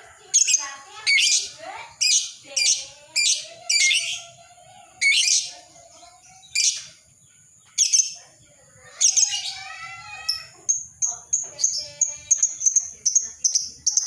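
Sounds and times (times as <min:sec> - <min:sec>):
lovebird shrill chirping: 0:00.4 - 0:04.4, 0:05.0 - 0:05.6, 0:07.8 - 0:08.2, 0:08.9 - 0:14.0.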